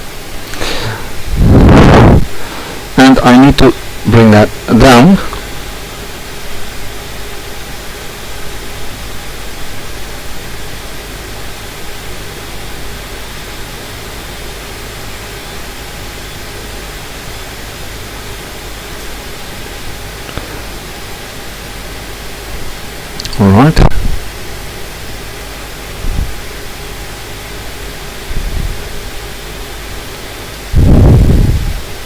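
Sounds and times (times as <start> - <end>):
fan-like whooshing: 0.3 - 3.1, 30.6 - 32.0
faint low hum: 0.6 - 5.9.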